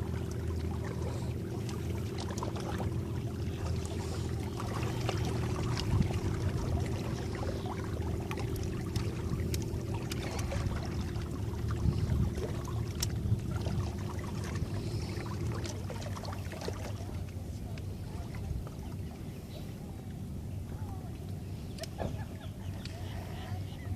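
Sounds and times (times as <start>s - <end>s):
small water slaps: 0.0s - 23.2s
electric boat motor humming: 0.0s - 23.9s
water splashing along hull: 0.0s - 23.9s.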